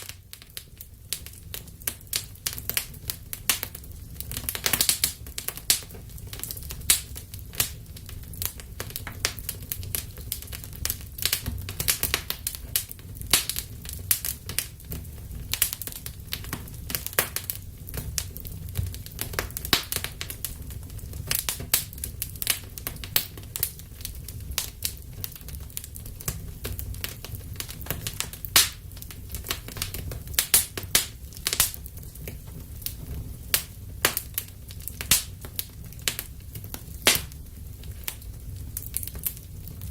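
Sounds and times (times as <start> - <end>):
low rumble of fire: 0.0 - 39.9
wood fire crackling and popping: 0.0 - 39.9.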